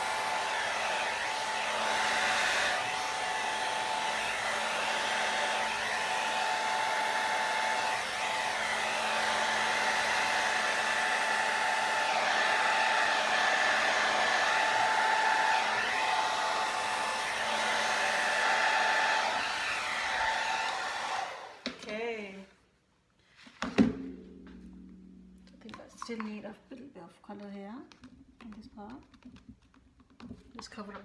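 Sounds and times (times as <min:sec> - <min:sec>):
hair dryer running: 0:00.0 - 0:21.8.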